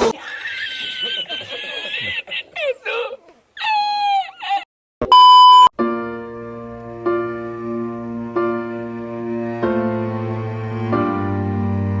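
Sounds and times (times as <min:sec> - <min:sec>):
censor beep tone: 0:05.0 - 0:05.7
soft background music chords: 0:05.8 - 0:12.0.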